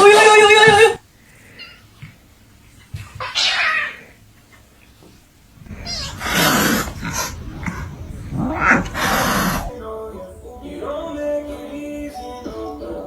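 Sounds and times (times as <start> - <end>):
cat yowling: 3.2 - 4.2, 5.6 - 9.8.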